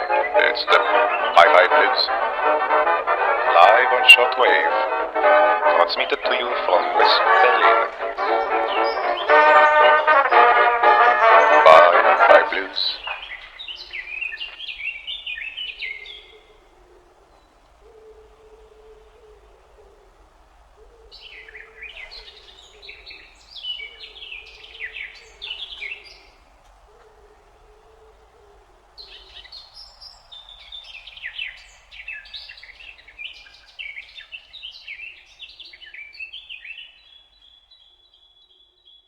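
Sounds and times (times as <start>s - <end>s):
songbird chirping warble: 0.0s - 26.6s, 27.3s - 39.0s
low hooting or cooing call: 15.6s - 29.5s.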